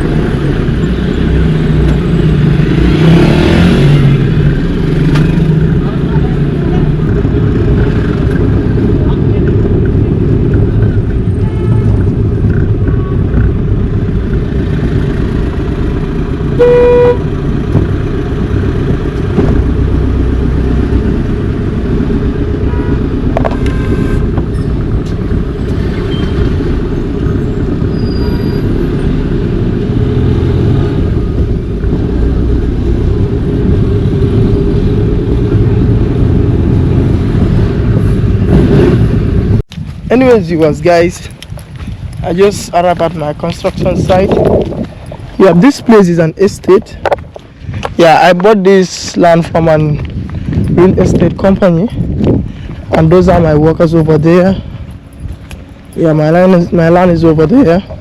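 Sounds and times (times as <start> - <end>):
car road and engine rumble: 0.0 - 58.0
car horn toot: 16.6 - 17.2, 22.7 - 24.3.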